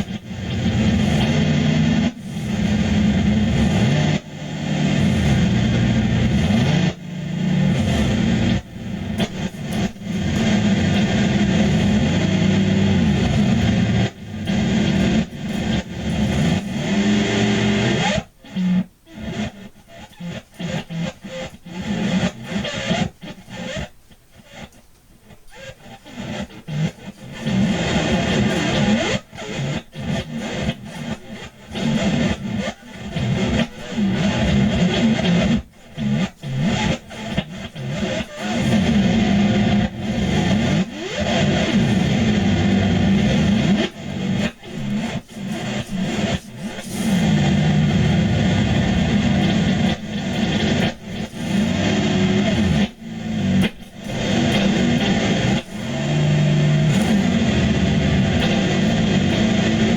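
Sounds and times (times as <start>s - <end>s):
noisy guitar improvisation: 0.0s - 59.9s.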